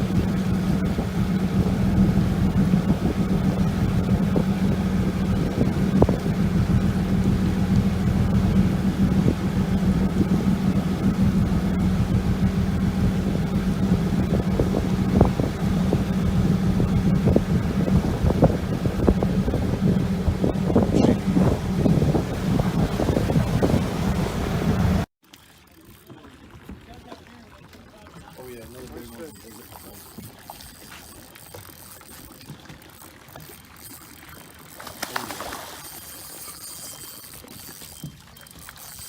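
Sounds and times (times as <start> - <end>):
wind buffeting microphone: 0.0 - 25.1
boat engine droning: 0.0 - 39.0.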